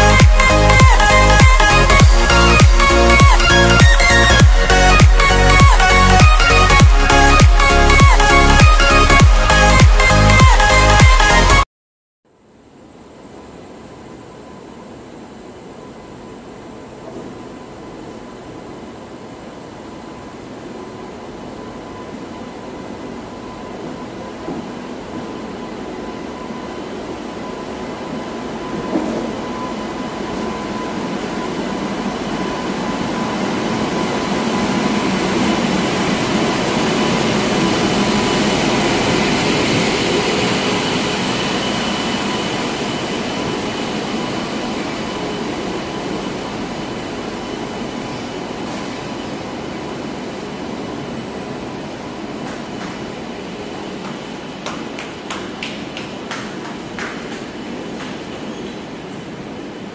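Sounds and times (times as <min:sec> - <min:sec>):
train wheels rumbling on rails: 0:20.5 - 0:59.9.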